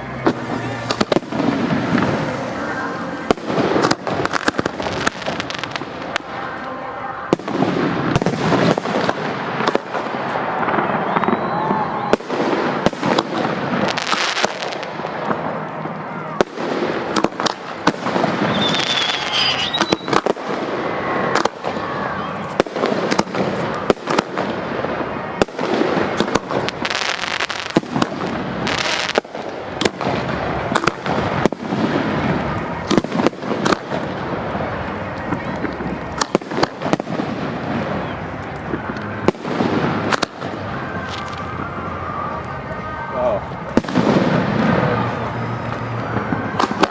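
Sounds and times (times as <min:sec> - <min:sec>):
firework crackling: 0:00.0 - 0:46.9
firework bangs and pops: 0:00.1 - 0:06.5, 0:07.2 - 0:42.6, 0:43.4 - 0:46.9
firework whistle: 0:00.2 - 0:15.4, 0:16.3 - 0:46.9
firework shells bursting: 0:16.8 - 0:20.6.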